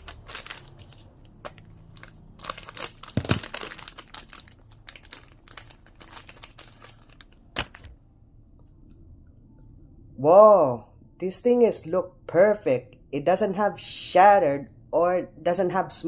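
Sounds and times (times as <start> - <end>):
plastic wrapper crinkling and tearing: 0.0 - 7.9.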